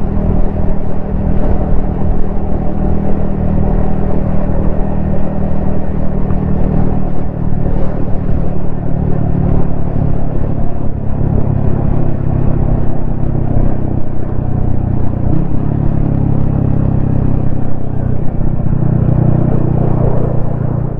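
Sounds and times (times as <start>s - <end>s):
motorcycle engine cruising: 0.0s - 20.9s.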